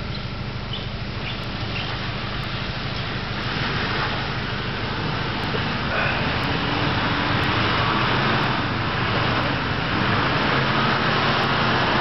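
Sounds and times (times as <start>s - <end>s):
engine running at low speed: 0.0s - 12.0s
steady rushing noise: 0.0s - 12.0s.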